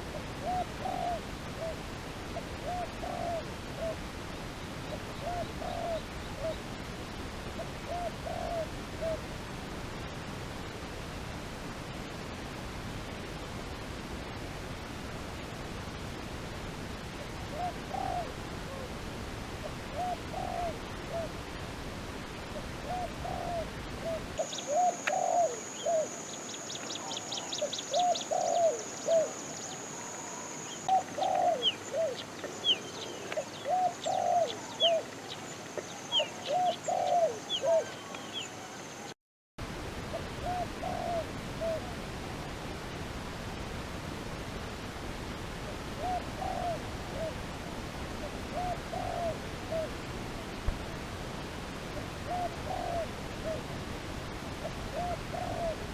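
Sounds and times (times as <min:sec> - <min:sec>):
doves cooing: 0:00.1 - 0:01.8, 0:02.4 - 0:04.0, 0:04.9 - 0:06.6, 0:07.6 - 0:09.2, 0:17.4 - 0:19.0, 0:19.7 - 0:21.4, 0:22.8 - 0:38.9, 0:40.4 - 0:41.9, 0:46.0 - 0:47.4, 0:48.4 - 0:50.0, 0:52.3 - 0:53.7, 0:54.6 - 0:55.9
small birds chirping: 0:24.4 - 0:39.2.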